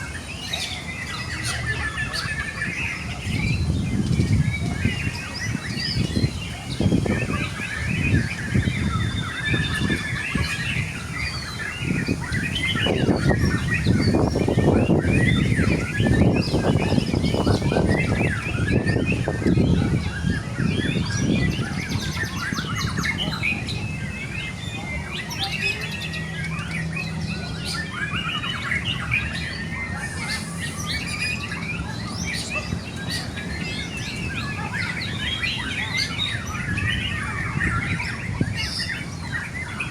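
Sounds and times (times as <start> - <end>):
birds singing: 0.0 - 39.9.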